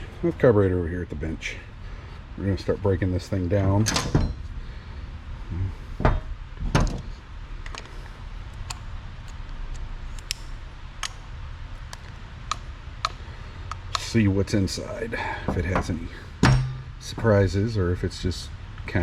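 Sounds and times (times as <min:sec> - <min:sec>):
metal parts clicking and clinking: 0:15.5 - 0:17.8.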